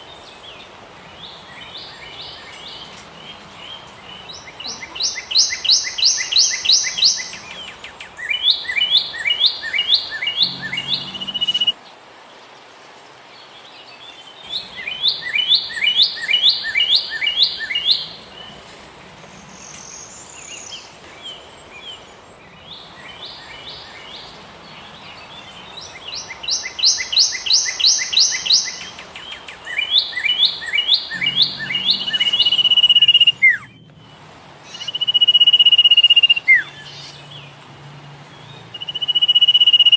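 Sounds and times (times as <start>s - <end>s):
bird singing chirpy notes: 1.2s - 11.8s, 19.4s - 37.6s, 38.4s - 39.9s.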